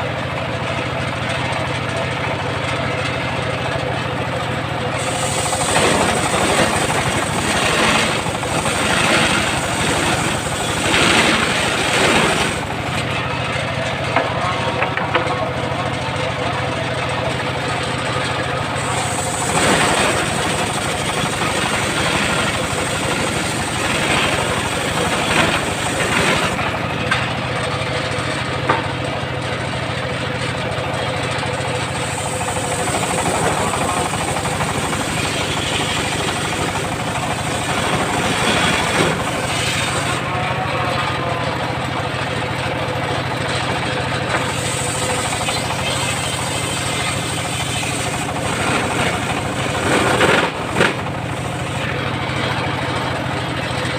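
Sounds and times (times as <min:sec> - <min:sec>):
sawmill engine running: 0:00.0 - 0:53.9.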